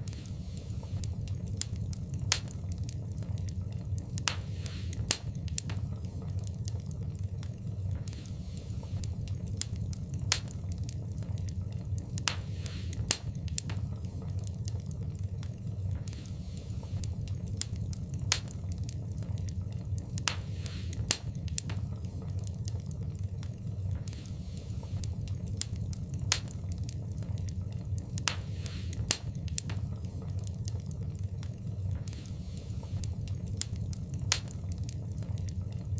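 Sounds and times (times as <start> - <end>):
low rumble of flames: 0.0 - 35.9
soft hiss: 0.0 - 35.9
wood fire crackling: 0.0 - 35.9.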